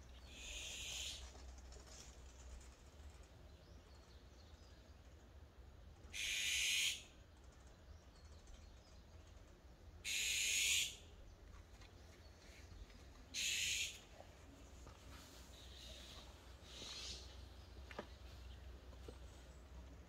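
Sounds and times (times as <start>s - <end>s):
bird harsh high calls: 0.3s - 1.3s, 6.1s - 7.1s, 10.0s - 11.2s, 13.3s - 14.1s, 15.6s - 17.4s.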